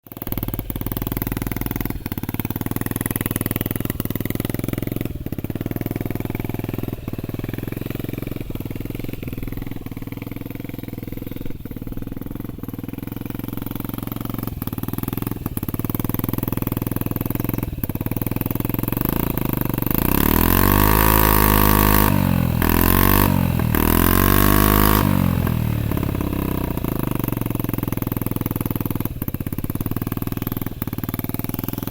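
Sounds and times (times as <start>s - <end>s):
scooter engine idling and revving: 0.0s - 31.9s.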